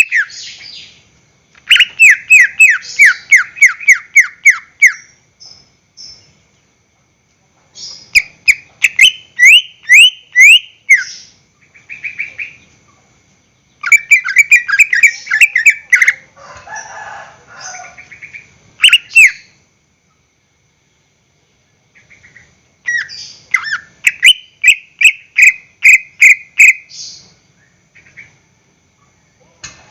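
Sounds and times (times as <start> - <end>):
bird chattering: 0.0 - 1.0, 1.6 - 5.2, 7.8 - 13.0, 13.8 - 16.3, 17.6 - 19.6, 22.0 - 27.3
bird singing whistled notes: 0.0 - 1.0, 1.6 - 6.4, 7.8 - 12.7, 13.6 - 16.2, 18.1 - 19.6, 22.0 - 28.3.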